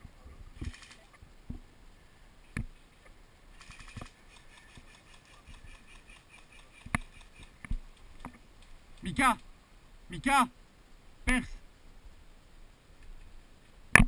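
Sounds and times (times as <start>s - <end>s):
faint scattered ticks: 2.4s - 9.6s
rapid evenly spaced clicks: 3.6s - 9.5s.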